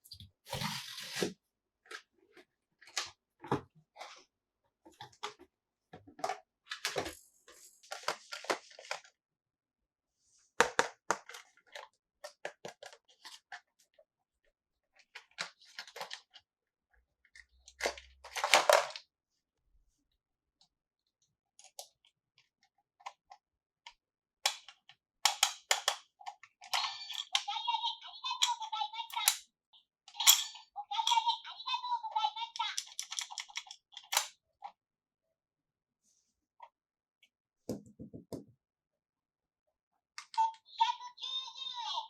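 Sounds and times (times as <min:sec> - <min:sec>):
plastic toy pieces clicking: 0:24.5 - 0:27.5, 0:28.3 - 0:29.4, 0:30.1 - 0:31.2, 0:32.5 - 0:34.3.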